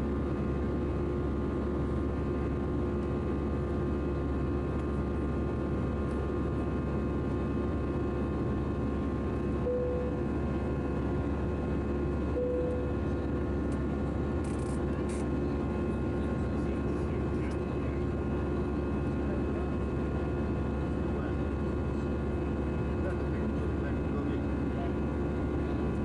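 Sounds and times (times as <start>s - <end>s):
airplane cabin engine and airflow noise: 0.0s - 26.0s
short cabin tones: 9.6s - 10.3s, 12.3s - 13.1s.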